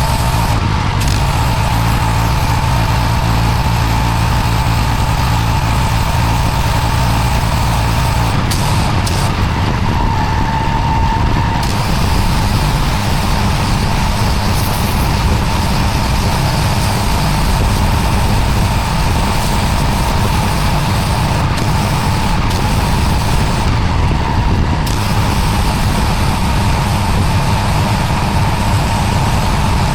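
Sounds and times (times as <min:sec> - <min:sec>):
pressure washer spraying paving: 0:00.0 - 0:29.9.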